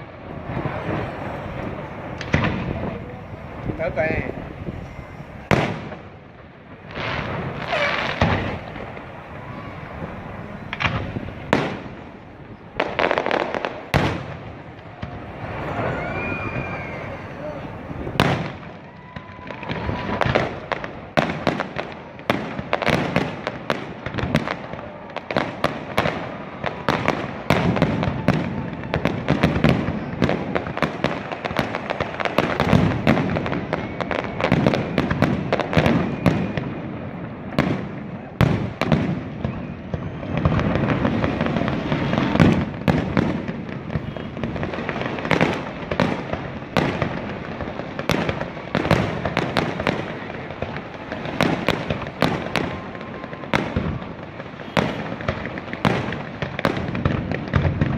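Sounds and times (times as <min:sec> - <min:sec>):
fireworks bursting and crackling: 0:00.0 - 0:57.9.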